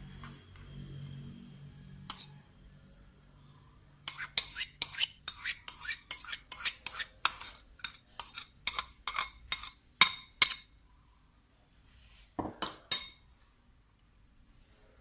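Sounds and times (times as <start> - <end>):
spoon clinking against a dish: 2.0 - 2.3, 4.1 - 10.8, 12.6 - 13.3.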